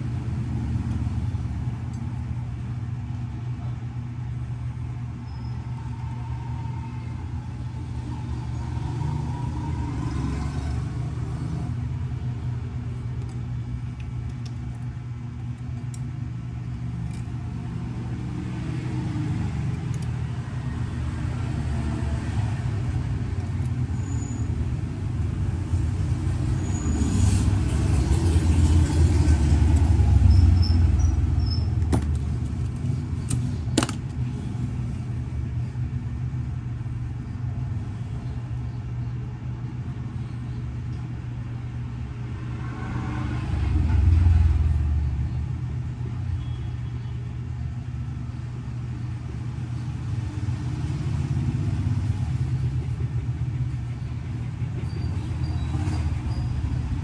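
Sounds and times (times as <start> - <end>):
road traffic rumble: 0.0 - 57.0
vehicle passing: 7.0 - 13.0, 17.6 - 35.2, 42.1 - 46.4.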